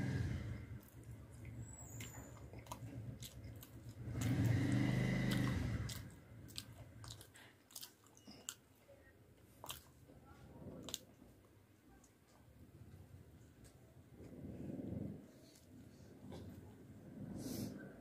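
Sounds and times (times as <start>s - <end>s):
person chewing food: 0.7s - 10.1s, 10.7s - 11.3s.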